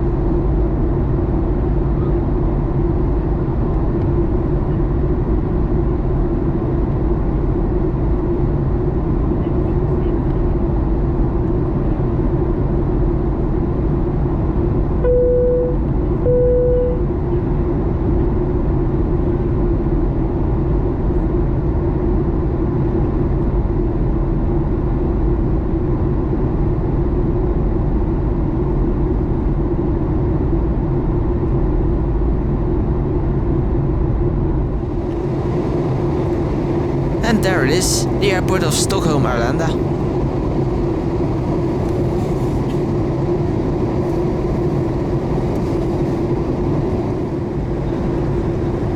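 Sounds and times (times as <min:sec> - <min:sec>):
airplane cabin noise: 0:34.7 - 0:48.9.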